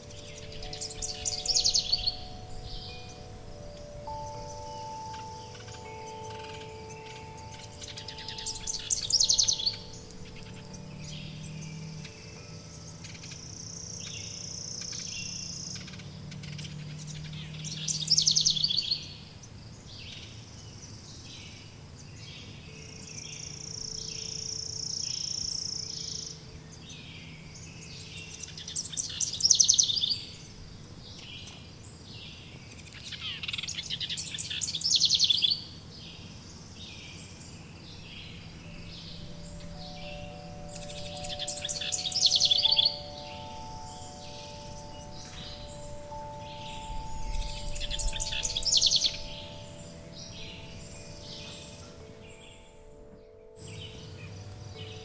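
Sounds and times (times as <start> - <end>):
high bird buzz: 0.0 - 19.5, 37.3 - 55.0
songbird trilled phrases: 0.0 - 21.2, 32.2 - 36.2, 36.9 - 55.0
faint high chirping: 0.0 - 55.0.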